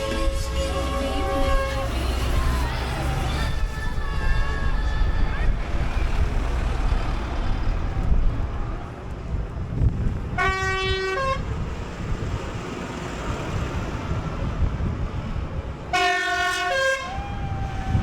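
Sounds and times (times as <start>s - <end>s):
vehicle horn tooting: 0.0s - 2.0s, 10.4s - 11.5s, 15.9s - 17.2s
rumble of passing engines: 0.0s - 18.0s.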